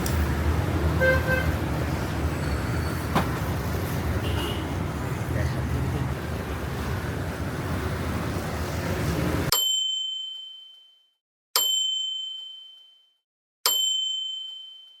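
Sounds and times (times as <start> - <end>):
bell dings: 9.5 - 11.0, 11.6 - 13.0, 13.7 - 15.0.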